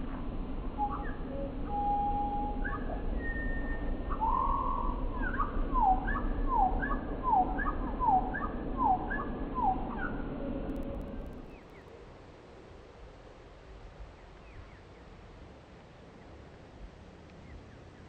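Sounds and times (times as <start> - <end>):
low background rumble: 0.0 - 18.0
slowed bird song: 0.8 - 10.4.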